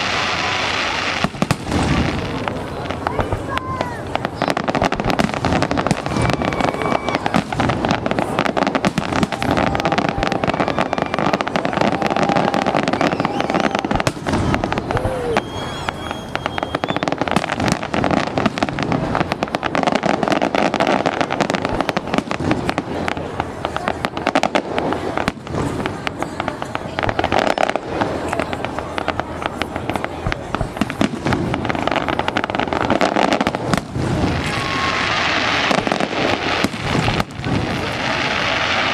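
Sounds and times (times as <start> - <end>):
fireworks whistles: 0.0 - 18.8, 27.1 - 38.9
fireworks bangs and crackling: 0.0 - 38.9.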